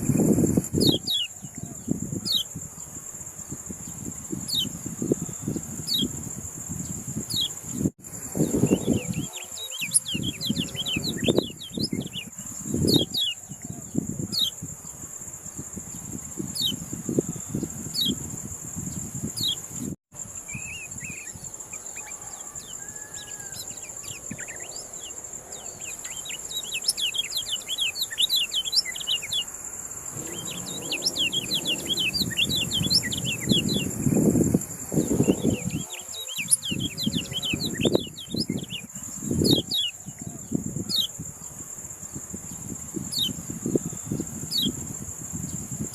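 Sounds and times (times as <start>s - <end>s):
high insect whine: 0.0s - 45.9s
bird chirping: 8.4s - 14.6s, 22.8s - 41.1s
low rumbling: 30.0s - 35.4s.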